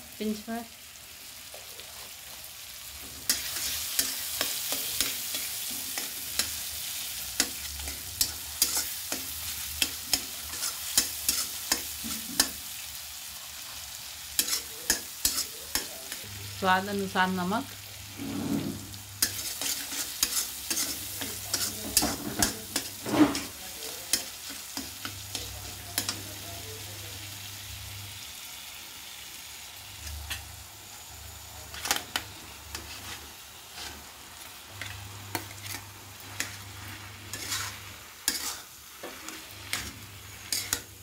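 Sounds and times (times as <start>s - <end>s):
frying hiss: 0.0s - 41.0s
metal spatula scraping pan: 3.2s - 12.6s, 14.4s - 15.9s, 18.0s - 26.1s, 31.7s - 41.0s.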